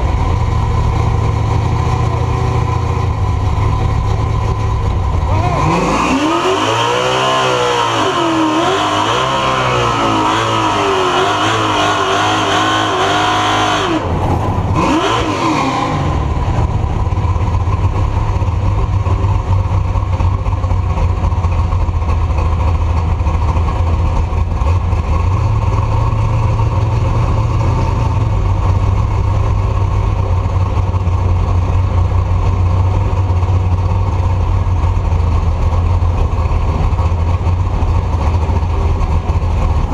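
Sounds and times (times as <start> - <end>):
engine revving: 0.0 - 19.2, 38.8 - 39.9.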